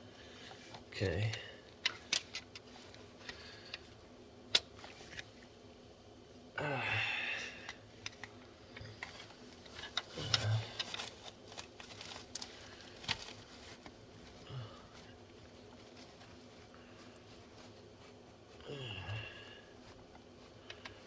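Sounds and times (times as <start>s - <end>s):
man grunting: 6.6s - 7.4s.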